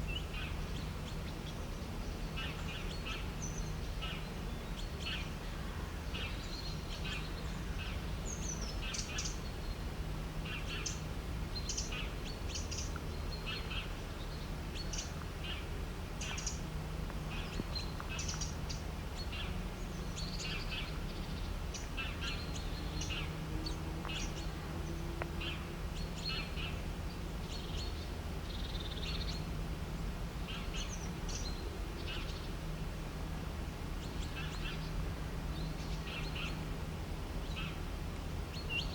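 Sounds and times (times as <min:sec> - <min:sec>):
birds chirping: 0:11.6 - 0:29.5, 0:33.9 - 0:36.6.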